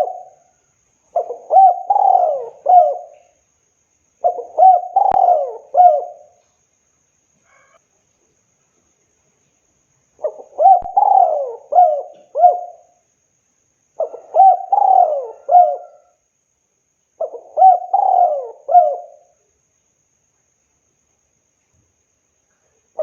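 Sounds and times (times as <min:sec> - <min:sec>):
dove cooing: 0:00.0 - 0:00.5, 0:01.1 - 0:03.4, 0:04.2 - 0:06.4, 0:10.2 - 0:13.0, 0:14.0 - 0:16.2, 0:17.2 - 0:19.4.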